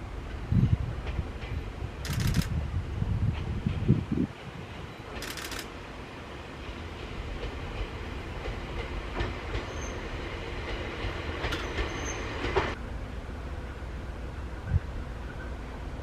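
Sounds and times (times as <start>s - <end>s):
train rumbling past: 0.0s - 16.0s
wheels clacking over rail joints: 4.7s - 5.8s, 6.6s - 12.8s
faint high wheel squeal: 9.7s - 10.1s, 11.6s - 12.4s.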